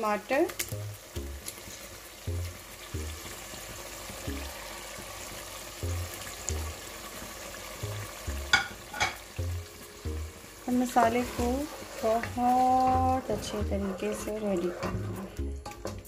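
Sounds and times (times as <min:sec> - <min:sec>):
food sizzling in hot oil: 0:00.0 - 0:16.0
background music with bass: 0:02.2 - 0:04.6, 0:05.8 - 0:07.1, 0:07.8 - 0:13.8.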